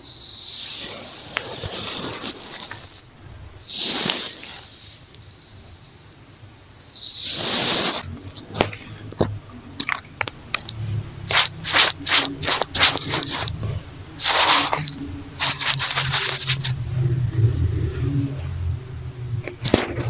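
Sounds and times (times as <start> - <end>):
brushing on microphone: 0.1 - 9.0, 10.5 - 18.6
hair tie scratching microphone: 0.4 - 18.6, 19.4 - 20.0
low hum: 8.0 - 20.0.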